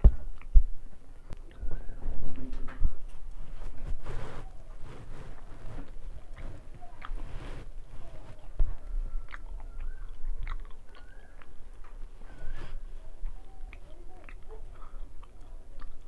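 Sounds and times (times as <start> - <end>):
mouth clicks: 0.0 - 0.7, 5.9 - 16.0
person chewing with wet smacking: 0.0 - 3.9, 4.5 - 16.0.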